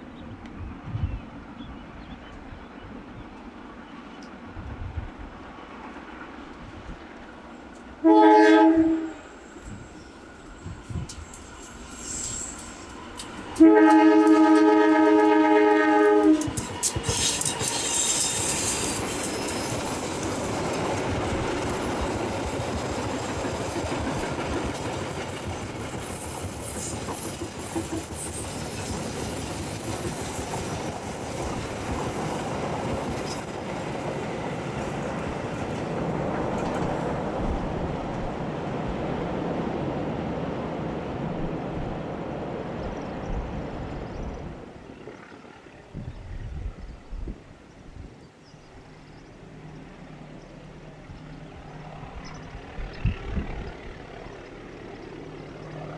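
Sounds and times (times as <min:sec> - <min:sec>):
locomotive horn blast: 0:08.0 - 0:09.3, 0:13.6 - 0:16.6
train wheels clattering over rail joints: 0:16.1 - 0:37.3.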